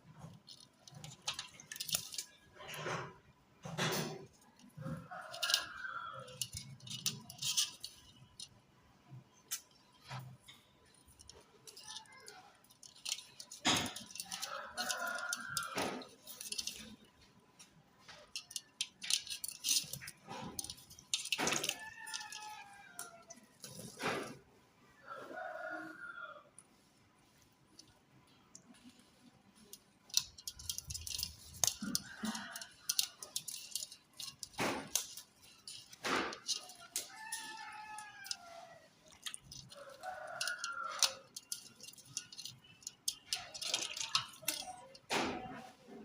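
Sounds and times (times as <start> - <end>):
sharp clicks and rattling: 0.0 - 24.4, 27.6 - 46.0.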